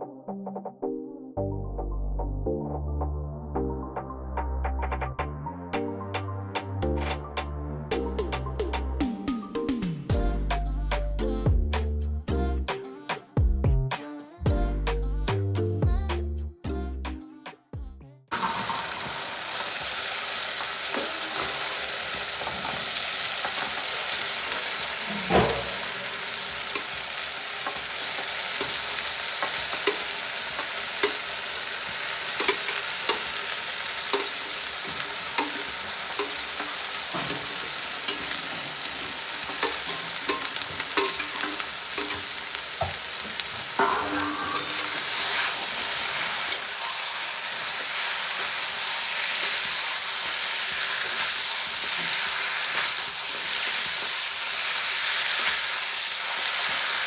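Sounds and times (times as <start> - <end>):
meat sizzling in hot oil: 18.3 - 57.0
metal spatula scraping pan: 25.0 - 27.0, 34.1 - 42.4, 43.8 - 47.3.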